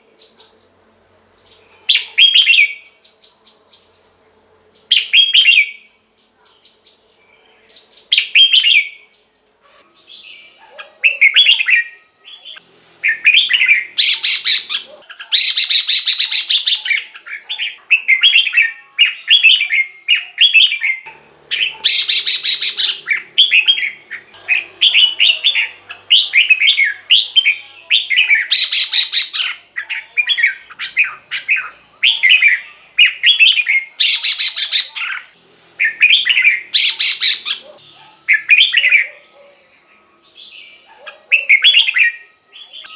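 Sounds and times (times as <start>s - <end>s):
bird singing bubbly phrases: 10.0s - 42.9s.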